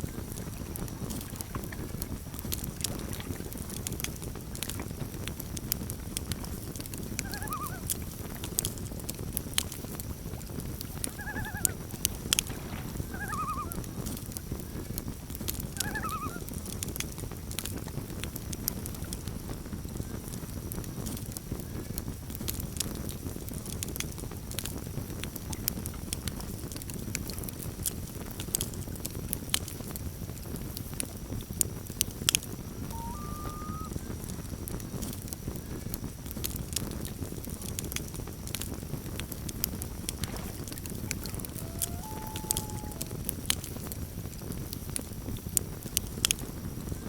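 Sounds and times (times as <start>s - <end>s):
campfire crackling and popping: 0.0s - 47.0s
bird giving short calls: 32.8s - 33.9s, 41.2s - 43.2s.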